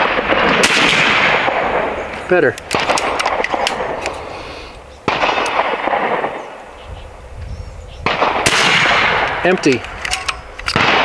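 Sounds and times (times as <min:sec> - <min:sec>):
air rifle shot: 0:00.0 - 0:04.3, 0:05.1 - 0:06.5, 0:08.0 - 0:11.0
small clicks: 0:09.2 - 0:10.9.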